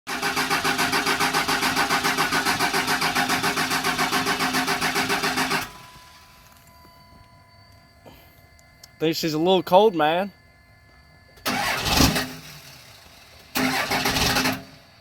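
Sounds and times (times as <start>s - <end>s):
diesel engine starter cranking: 0.1s - 6.7s, 11.4s - 15.0s.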